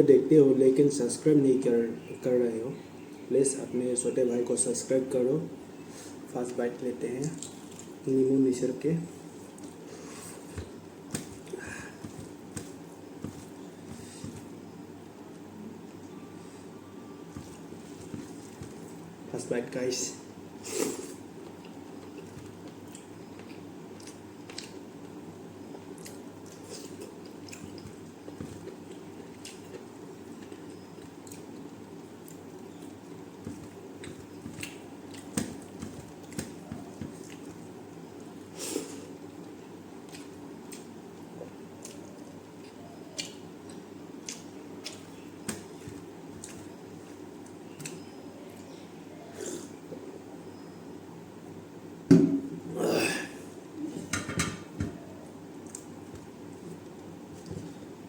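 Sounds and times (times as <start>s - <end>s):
steady low hum: 0.0s - 58.0s
person chewing food: 9.2s - 14.6s, 17.3s - 19.0s, 21.4s - 48.7s, 55.5s - 57.8s.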